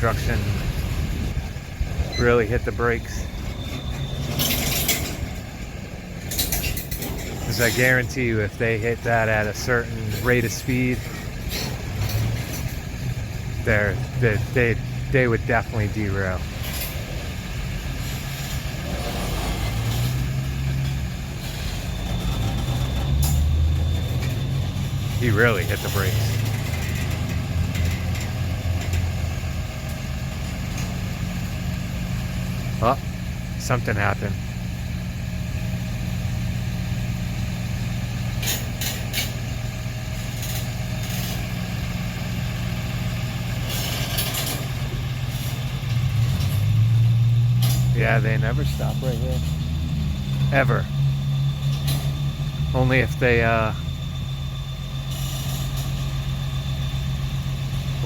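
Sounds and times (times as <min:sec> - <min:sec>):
diesel locomotive idling: 0:00.0 - 0:58.0
train wheels rumbling on rail: 0:00.0 - 0:58.0
high brake squeal: 0:02.0 - 0:05.5, 0:18.0 - 0:27.2, 0:43.5 - 0:58.0.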